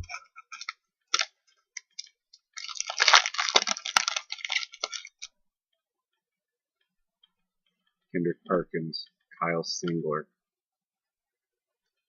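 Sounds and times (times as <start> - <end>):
foil wrapper crinkling: 0.5 - 5.3.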